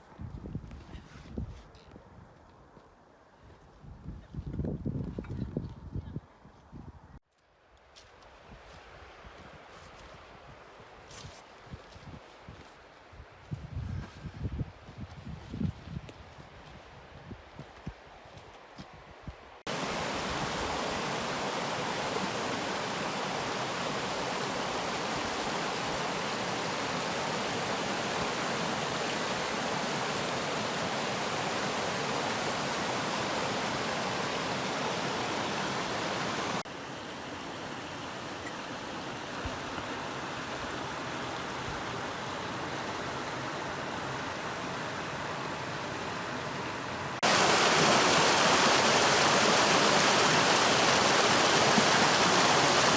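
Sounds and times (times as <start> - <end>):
stream water rushing: 19.6 - 52.9.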